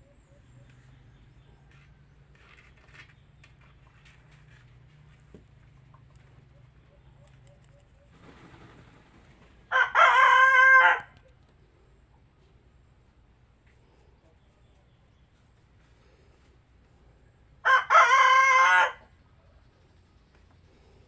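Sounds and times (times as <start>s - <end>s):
rooster crowing: 9.7s - 11.2s, 17.6s - 19.1s.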